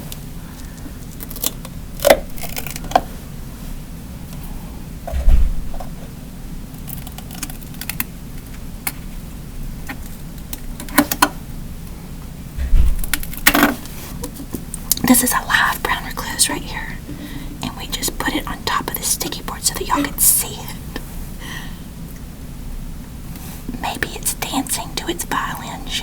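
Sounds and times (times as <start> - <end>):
dull low thumps: 5.1 - 6.0, 12.6 - 13.5.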